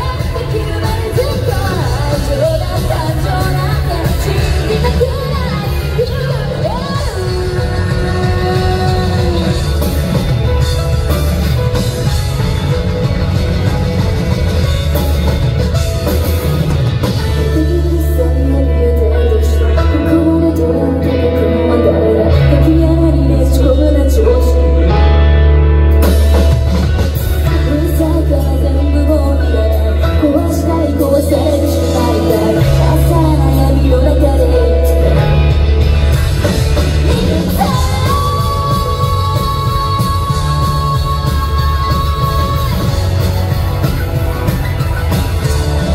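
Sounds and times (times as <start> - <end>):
woman singing lead vocal: 0.0 - 10.8, 17.2 - 25.3, 27.4 - 44.0
live rock band playing: 0.0 - 45.9.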